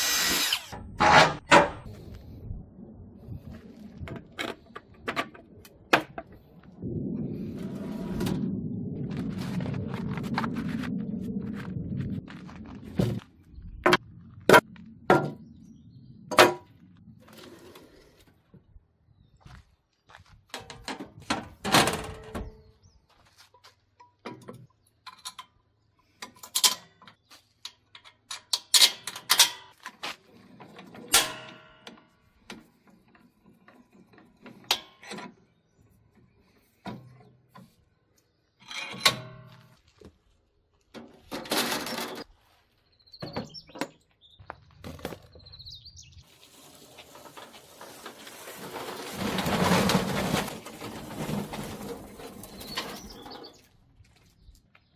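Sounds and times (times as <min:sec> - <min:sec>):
rushing noise: 0:06.6 - 0:13.2
metal clanks and knocks: 0:13.9 - 0:15.4.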